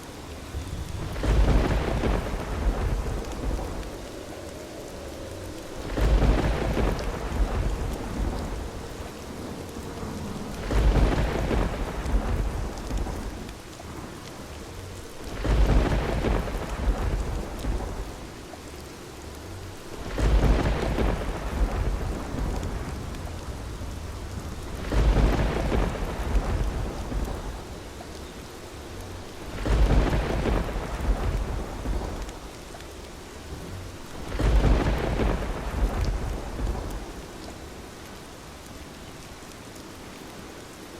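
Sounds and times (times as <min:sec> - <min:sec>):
heavy rain: 0:00.0 - 0:40.9
thunder rolling: 0:00.5 - 0:04.4, 0:05.2 - 0:14.2, 0:15.2 - 0:18.5, 0:20.0 - 0:27.9, 0:29.4 - 0:32.5, 0:33.5 - 0:37.5.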